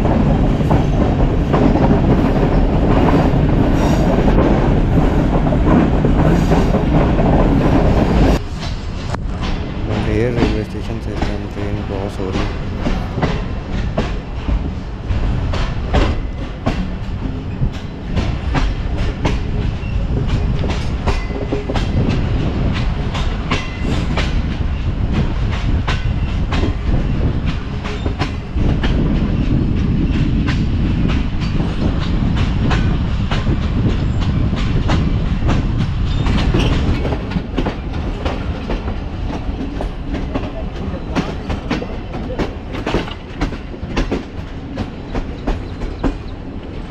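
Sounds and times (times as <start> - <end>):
train rumbling on track: 0.0 - 46.9
wheels clacking over rail joints: 12.3 - 46.9.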